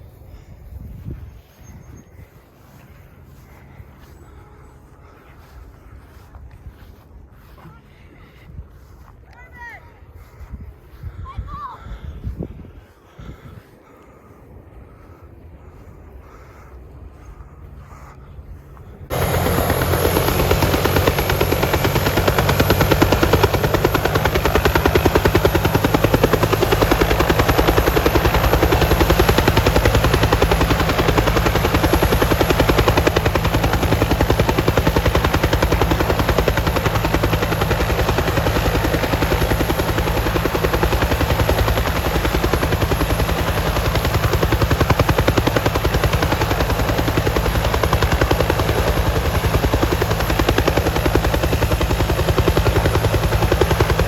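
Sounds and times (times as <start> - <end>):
helicopter engine drone: 0.0 - 54.0
helicopter rotor beating: 14.5 - 54.0.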